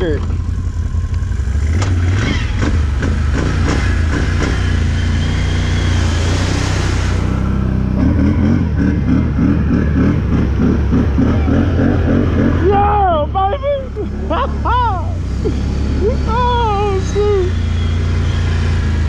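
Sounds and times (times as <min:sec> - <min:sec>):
engine revving hard: 0:01.6 - 0:13.1.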